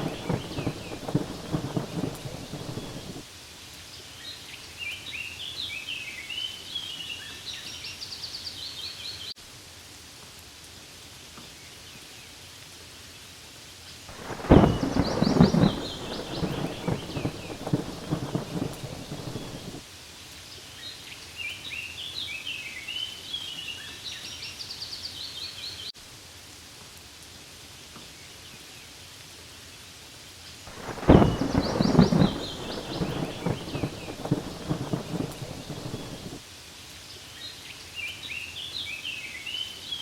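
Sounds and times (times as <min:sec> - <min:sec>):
birds chirping: 0:00.0 - 0:03.2, 0:14.2 - 0:19.8, 0:30.7 - 0:36.4
thunder rumbling: 0:00.0 - 0:03.2, 0:14.1 - 0:19.8, 0:30.7 - 0:36.4
rain falling on leaves: 0:00.0 - 0:40.0.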